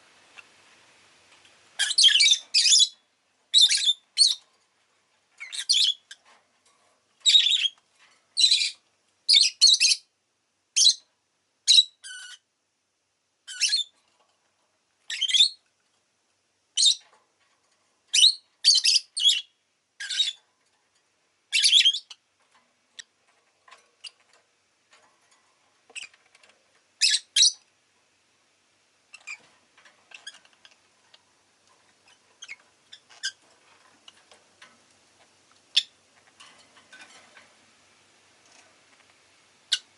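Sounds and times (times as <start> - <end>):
lovebird chirping: 1.8 - 4.4, 5.4 - 6.2, 7.2 - 7.8, 8.4 - 10.1, 10.8 - 12.4, 13.5 - 13.9, 15.1 - 15.6, 16.8 - 17.0, 18.1 - 20.4, 21.5 - 22.2, 27.0 - 27.6, 32.0 - 33.4, 35.7 - 36.0, 39.7 - 39.9.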